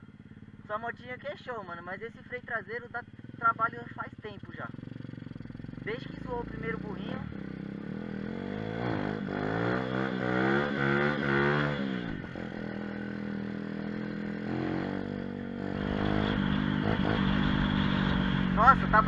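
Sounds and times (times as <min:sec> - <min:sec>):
small engine revving: 0:05.8 - 0:19.0.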